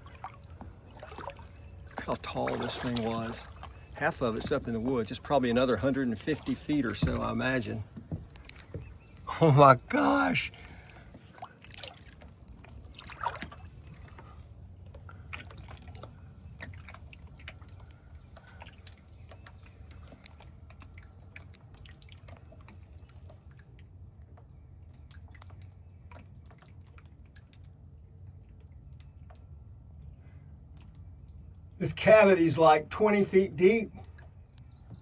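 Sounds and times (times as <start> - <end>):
water dripping and trickling: 0.0 - 35.0.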